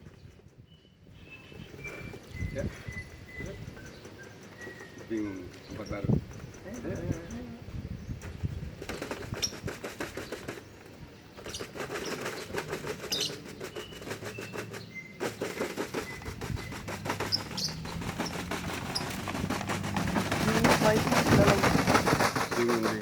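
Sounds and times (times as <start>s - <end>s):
birds flapping wings in cage: 8.2s - 23.0s.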